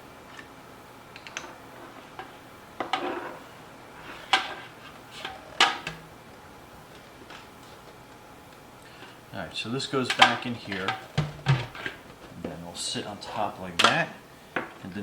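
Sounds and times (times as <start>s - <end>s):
plastic parts knocking and clicking: 10.1s - 12.6s.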